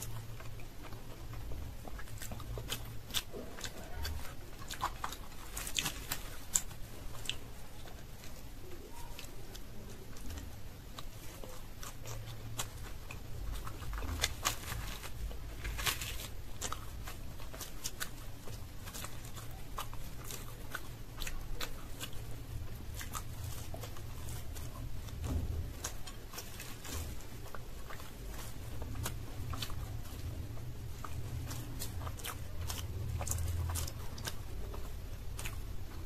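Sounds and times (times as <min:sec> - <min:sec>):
chewing and mouth sounds: 0:00.0 - 0:36.0
fingers tearing fried bread: 0:00.0 - 0:36.0.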